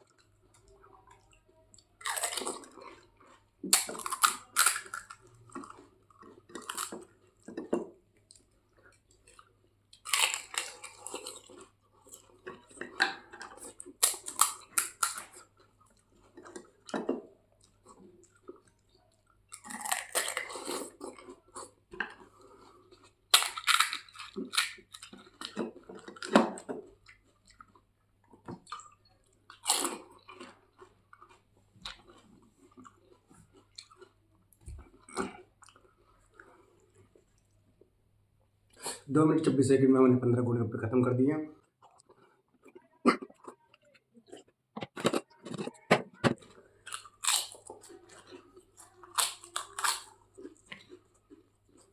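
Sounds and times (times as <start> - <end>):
person crunching crisp snacks: 2.0 - 7.4, 8.3 - 16.9, 19.5 - 26.3, 28.6 - 34.2, 41.9 - 51.9.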